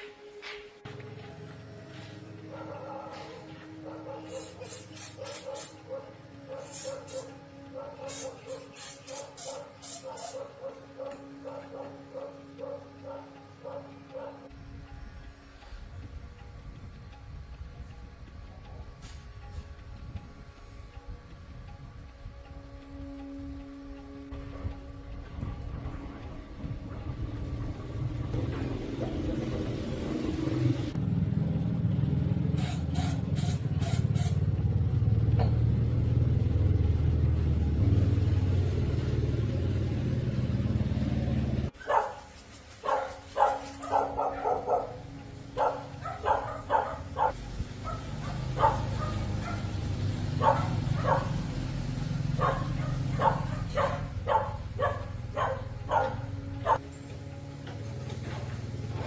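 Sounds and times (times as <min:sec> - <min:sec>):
faint engine hum: 0:00.2 - 0:59.0
dog barking: 0:02.5 - 0:14.5, 0:41.8 - 0:49.8, 0:50.4 - 0:51.5, 0:52.3 - 0:56.8
motorcycle engine running: 0:25.4 - 0:41.8, 0:44.8 - 0:59.0.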